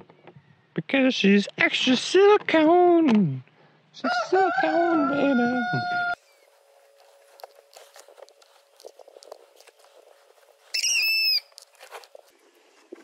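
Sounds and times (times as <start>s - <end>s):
loud high-pitched bird call: 10.7s - 11.6s.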